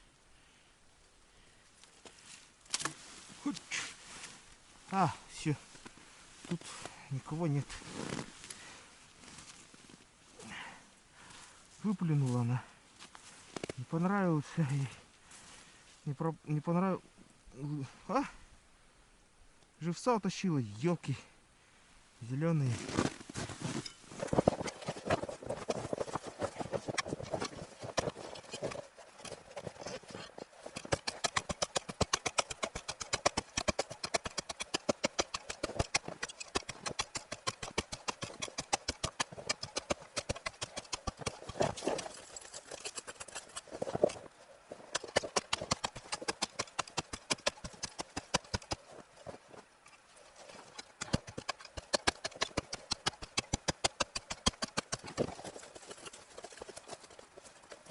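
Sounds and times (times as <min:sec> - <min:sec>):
footsteps crunching on snow: 0:02.0 - 0:10.5, 0:22.6 - 0:53.5.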